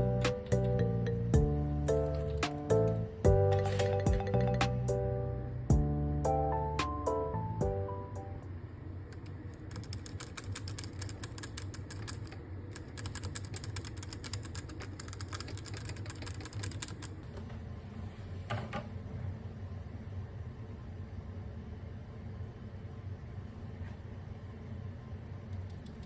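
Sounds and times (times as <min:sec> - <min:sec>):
falling chime jingle: 0:03.3 - 0:08.4
typing on mechanical keyboard: 0:09.1 - 0:17.2.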